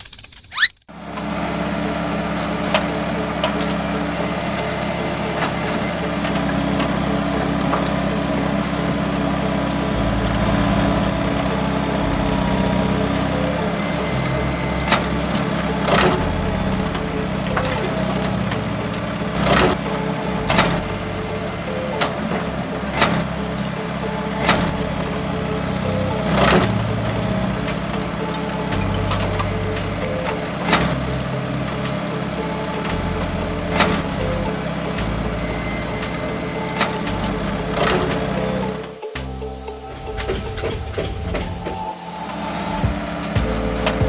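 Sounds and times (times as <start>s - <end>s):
small motor humming: 0.0s - 39.2s.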